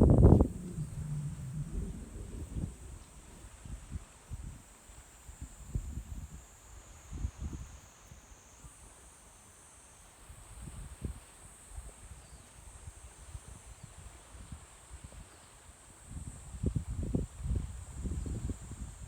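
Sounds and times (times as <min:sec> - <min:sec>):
insects chirring: 0:00.0 - 0:03.4
wind rumble on microphone: 0:00.0 - 0:07.8, 0:16.0 - 0:19.0.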